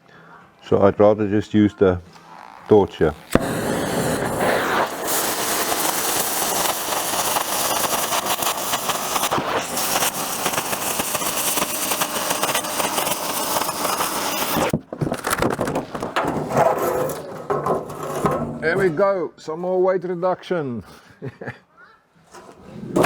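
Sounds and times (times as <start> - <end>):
cutting torch hissing and crackling: 2.9 - 19.0.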